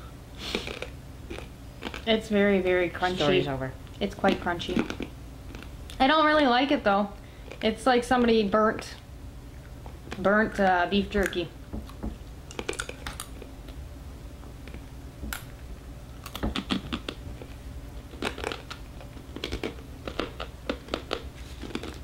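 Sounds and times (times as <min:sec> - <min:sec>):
crunchy chewing: 0:00.4 - 0:02.2, 0:03.1 - 0:06.0, 0:07.3 - 0:07.8, 0:11.2 - 0:13.8, 0:14.6 - 0:22.0.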